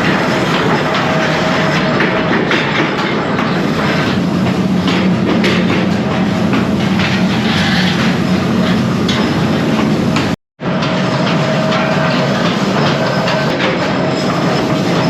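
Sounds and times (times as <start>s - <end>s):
factory machinery clattering: 0.0s - 15.0s
machinery hum: 0.0s - 15.0s.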